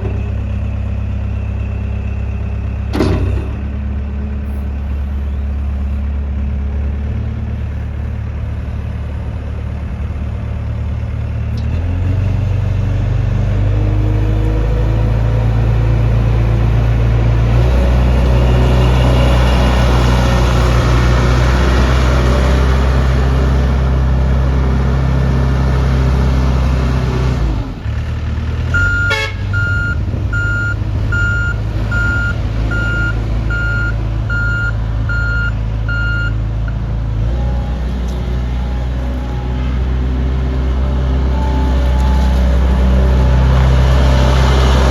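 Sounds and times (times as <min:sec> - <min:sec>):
loader engine throttling up: 0:00.0 - 0:44.9
reversing alarm beeping: 0:28.7 - 0:36.8.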